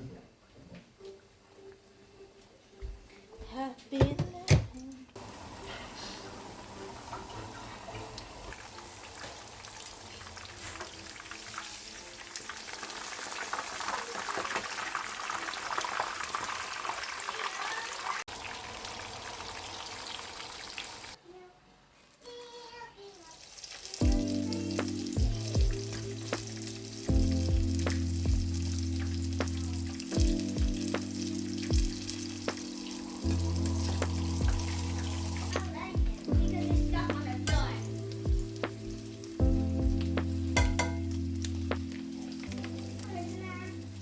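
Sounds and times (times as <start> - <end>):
food sizzling in hot oil: 5.2 - 21.2, 23.0 - 44.0
background music with bass line: 24.0 - 44.0.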